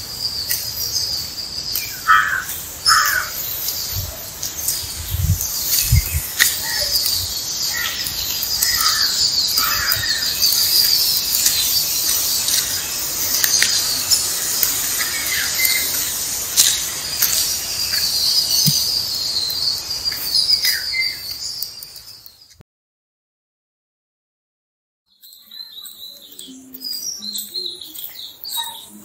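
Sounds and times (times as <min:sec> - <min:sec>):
birds chirping: 0:00.0 - 0:22.6, 0:25.1 - 0:29.0
high-pitched chirring: 0:25.4 - 0:29.0.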